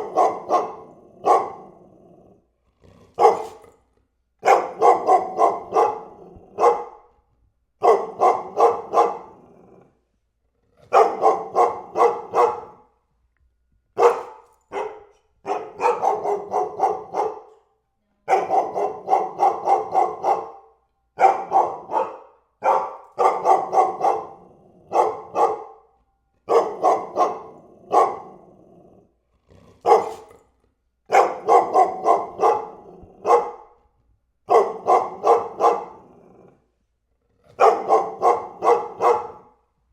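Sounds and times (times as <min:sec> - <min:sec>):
dog barking: 0:00.0 - 0:01.9, 0:03.2 - 0:03.7, 0:04.4 - 0:07.1, 0:07.8 - 0:09.5, 0:10.9 - 0:13.0, 0:14.0 - 0:28.5, 0:29.8 - 0:30.3, 0:31.1 - 0:33.8, 0:34.4 - 0:36.6, 0:37.6 - 0:39.7.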